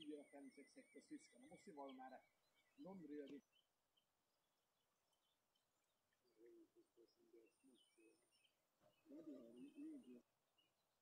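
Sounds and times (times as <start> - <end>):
faint high chirps: 5.1 - 11.0.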